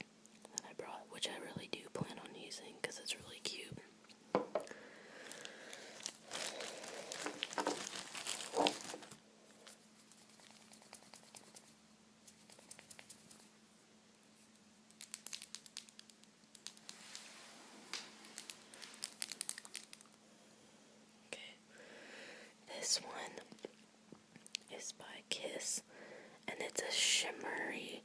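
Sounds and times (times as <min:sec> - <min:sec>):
sharp plastic crackles: 0:05.2 - 0:09.2, 0:17.9 - 0:20.2
crinkling plastic: 0:05.2 - 0:09.8, 0:17.9 - 0:20.1.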